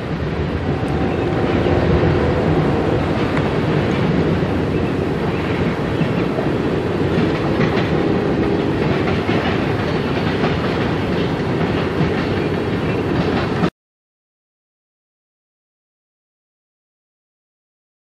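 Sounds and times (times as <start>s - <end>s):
steel wheels clattering on rails: 0.0s - 13.7s.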